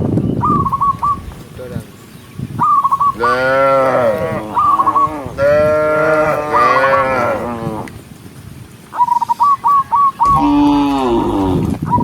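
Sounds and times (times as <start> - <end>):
cow mooing: 3.2 - 7.9, 10.3 - 11.8.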